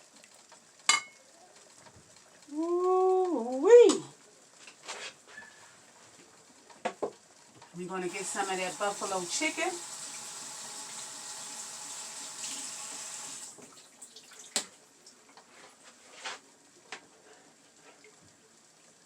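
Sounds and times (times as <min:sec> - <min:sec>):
steady hiss: 0:04.0 - 0:13.5.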